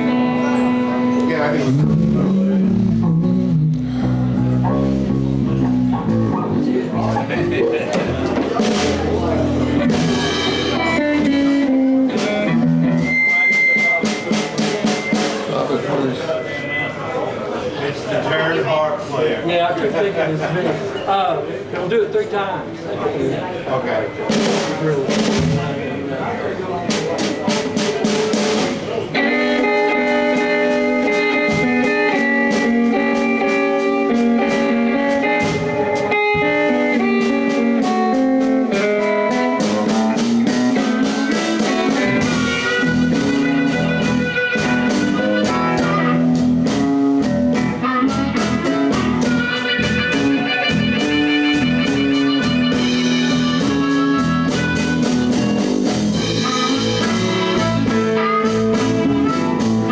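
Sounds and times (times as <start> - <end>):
electric guitar: 0.0 - 15.5, 27.7 - 59.9
bass guitar: 0.0 - 15.7, 27.5 - 59.9
steady drum beat: 0.0 - 16.2, 24.2 - 59.9.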